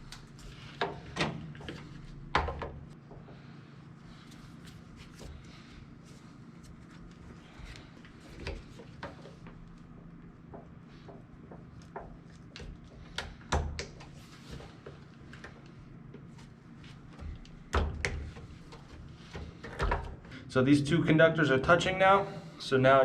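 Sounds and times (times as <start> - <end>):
steady low hum: 0.0 - 23.0
cables clicking and knocking: 8.0 - 16.4, 17.0 - 20.3.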